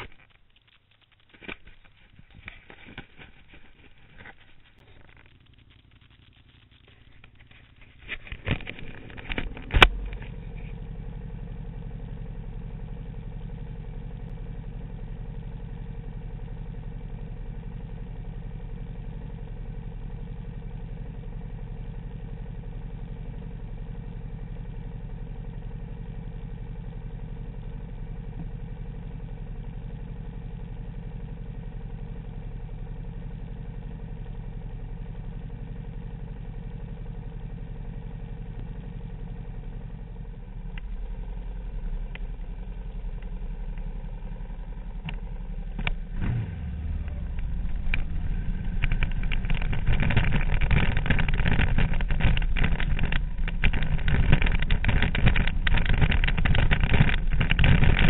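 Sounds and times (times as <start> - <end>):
motorcycle engine starting and idling: 0.0 - 58.0.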